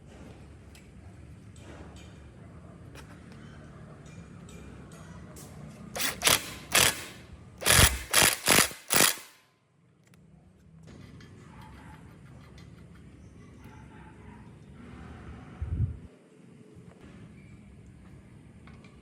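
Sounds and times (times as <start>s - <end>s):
short loud mechanical noises: 5.9s - 9.4s.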